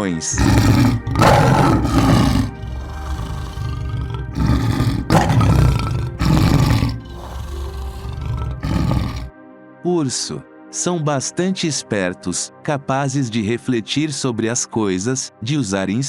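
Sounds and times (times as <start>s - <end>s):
lion roaring: 0.0s - 9.3s
background music: 0.0s - 16.0s.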